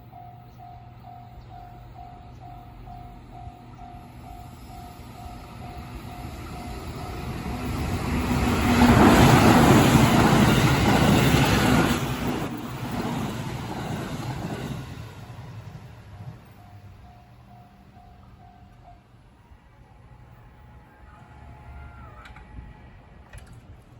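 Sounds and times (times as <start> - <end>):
level crossing warning bell: 0.0 - 8.4, 16.4 - 19.5
train passing: 0.0 - 23.9.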